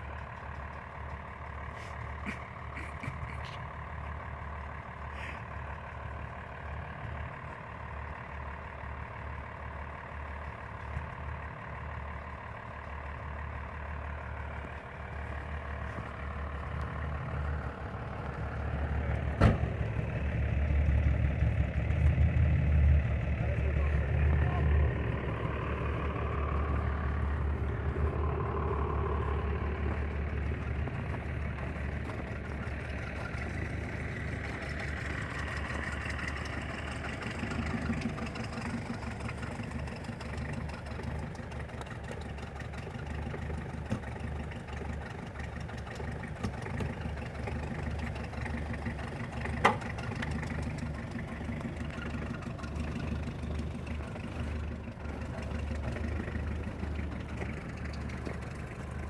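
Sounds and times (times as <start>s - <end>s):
engine idling: 0.0s - 59.0s.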